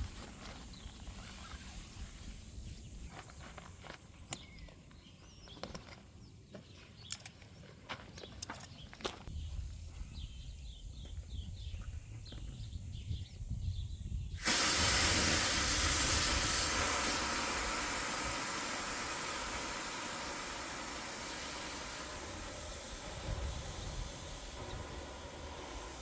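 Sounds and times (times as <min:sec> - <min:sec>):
faint birdsong: 0:00.1 - 0:14.4
low wind rumble: 0:09.3 - 0:26.0
air hissing out of a valve: 0:14.4 - 0:26.0.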